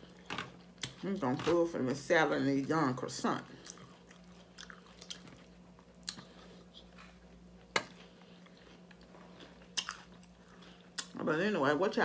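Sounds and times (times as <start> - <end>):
quiet chewing: 3.5 - 11.2.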